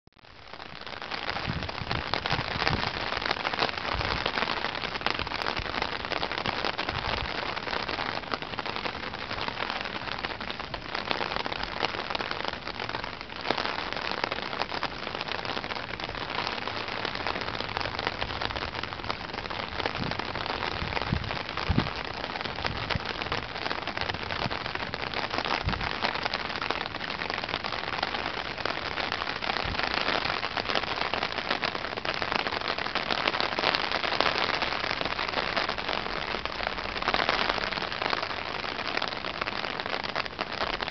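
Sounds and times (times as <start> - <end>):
heavy rain falling: 0.2 - 40.9
wind gusts buffeting microphone: 1.4 - 3.0, 19.6 - 25.0, 25.6 - 26.0.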